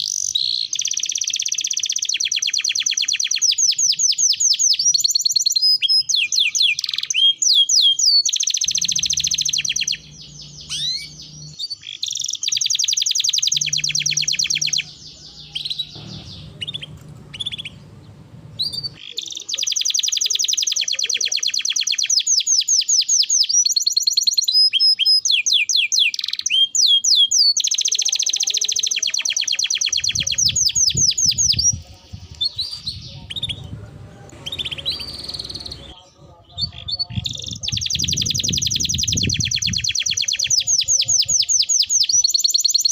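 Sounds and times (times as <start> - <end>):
canary singing: 0.0 - 42.9
low hum: 8.8 - 11.6, 13.6 - 19.0.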